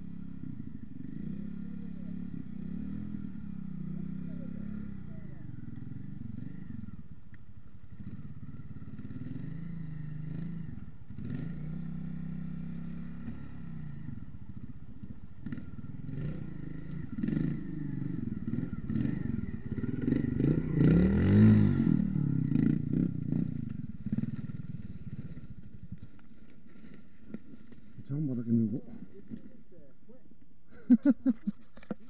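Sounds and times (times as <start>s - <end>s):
motorcycle revving: 0.0s - 30.2s
motorcycle engines idling: 0.0s - 32.0s.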